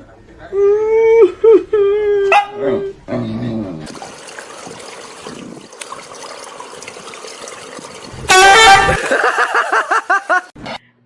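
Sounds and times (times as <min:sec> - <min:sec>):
farm animal honking: 0:08.2 - 0:09.1.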